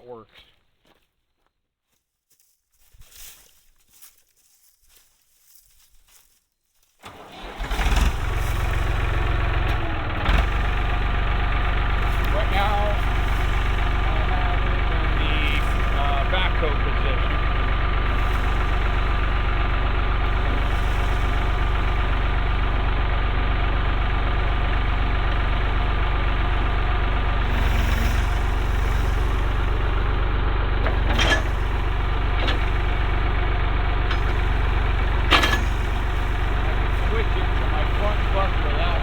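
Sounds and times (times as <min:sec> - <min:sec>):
tractor diesel engine running: 0:07.0 - 0:39.0
sharp knocks or clanks: 0:34.1 - 0:36.1.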